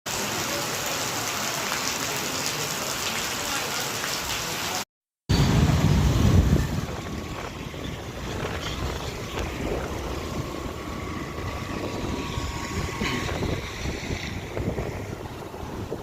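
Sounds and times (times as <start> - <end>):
heavy rain falling: 0.1 - 16.0
thunder rumble: 5.3 - 16.0.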